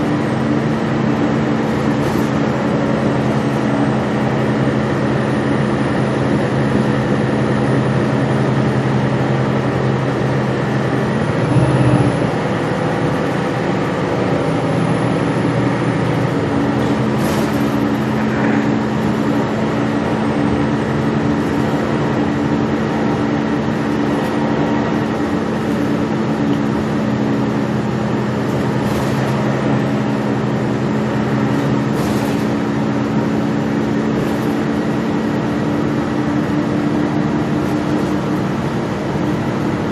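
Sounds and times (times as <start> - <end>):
bus engine and drivetrain hum: 0.0 - 39.9
road noise: 0.0 - 39.9
short rattles: 16.8 - 19.3.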